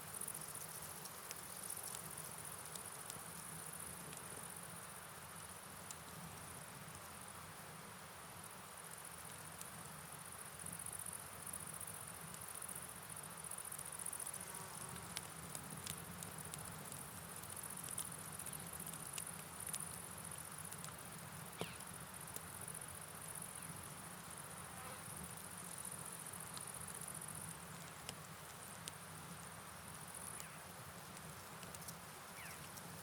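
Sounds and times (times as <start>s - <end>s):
rain: 0.0s - 33.0s
high insect trill: 31.8s - 33.0s.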